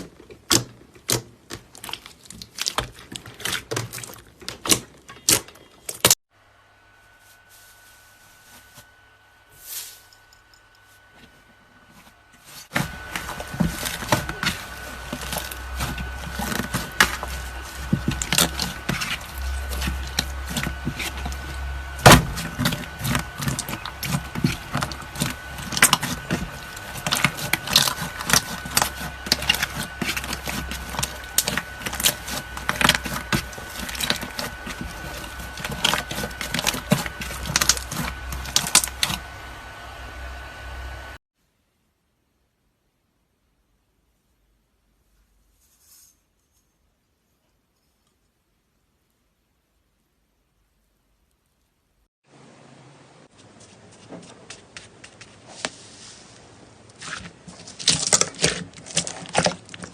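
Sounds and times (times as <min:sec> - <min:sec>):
steady low hum: 0:05.7 - 0:41.2.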